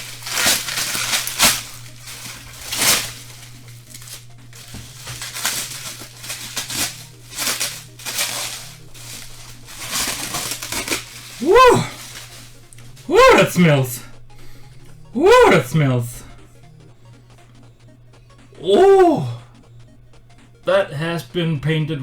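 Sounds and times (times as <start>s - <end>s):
packaging crinkling and rustling: 0.0s - 14.2s
steady low hum: 0.0s - 22.0s.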